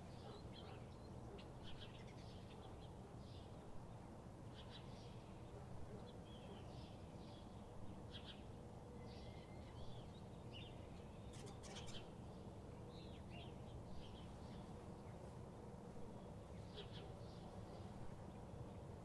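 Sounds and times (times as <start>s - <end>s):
birds chirping and calling: 11.2s - 12.1s.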